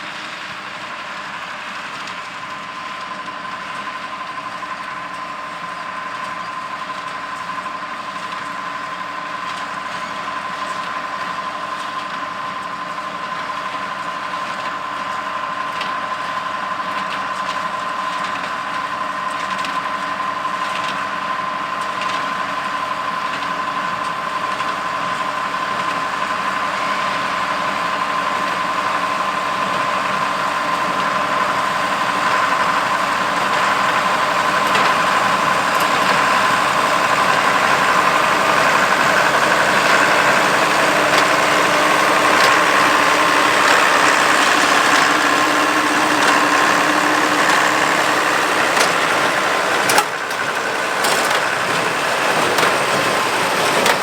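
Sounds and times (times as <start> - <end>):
tractor engine under load: 0.0 - 54.0.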